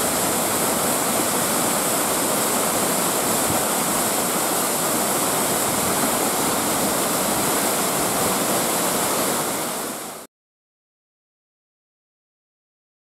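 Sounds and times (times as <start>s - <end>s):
waterfall roaring: 0.0s - 10.2s.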